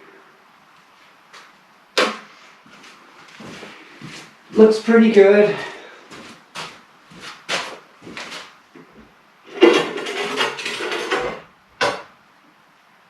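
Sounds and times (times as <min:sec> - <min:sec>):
scraping rub: 0:09.5 - 0:11.4.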